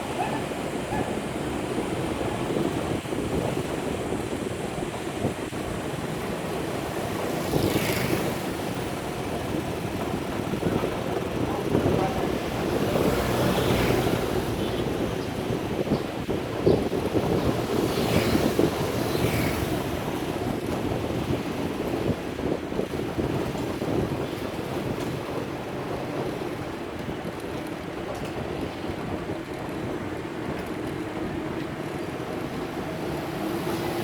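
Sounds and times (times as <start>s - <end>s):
road traffic: 0.0s - 34.0s
wind rumbling on microphone: 0.0s - 34.0s
loud vehicle passing: 12.5s - 15.0s.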